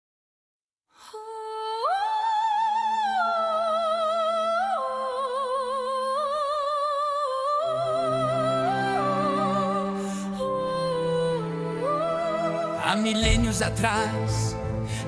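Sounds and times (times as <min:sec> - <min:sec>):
high wordless voice singing: 0:01.0 - 0:15.0.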